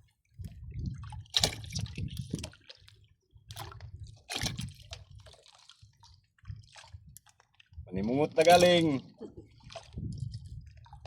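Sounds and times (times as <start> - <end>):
water splashing and dripping: 0.8 - 7.8.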